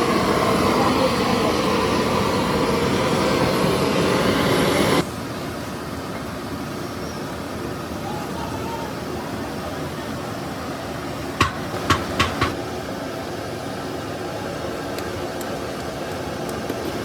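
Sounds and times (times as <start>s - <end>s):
steady mechanical hum: 0.0s - 17.0s
sharp tool knocks: 11.4s - 12.6s.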